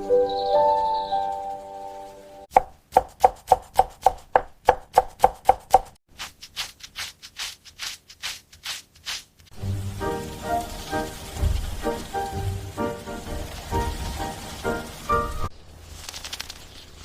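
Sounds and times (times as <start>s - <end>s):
knife chopping on cutting board: 2.5s - 5.9s.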